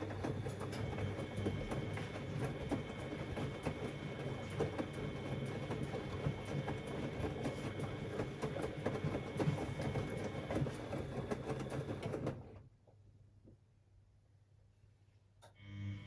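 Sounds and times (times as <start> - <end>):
washing machine drum clatter and whine: 0.0 - 12.8
faint low hum: 13.4 - 16.0.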